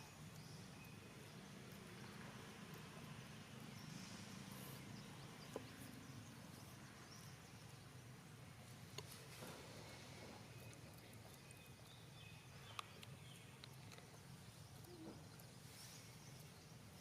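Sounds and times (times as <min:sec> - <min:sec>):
small clicks: 0:12.7 - 0:15.5.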